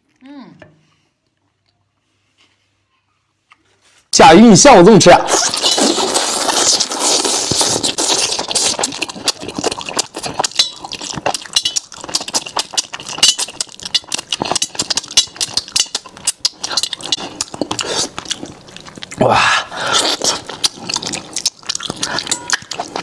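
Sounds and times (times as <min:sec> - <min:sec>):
man chewing loudly: 0:05.2 - 0:23.0.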